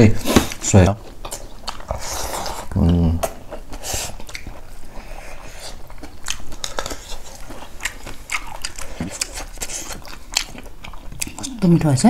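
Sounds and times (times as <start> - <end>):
people chewing wet mouth smacks: 1.0 - 11.9.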